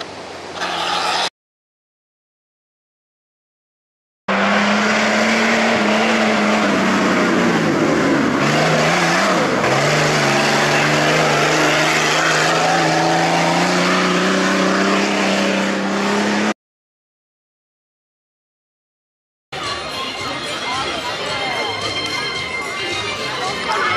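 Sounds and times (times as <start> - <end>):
race vehicle engine running hard: 4.3 - 16.6.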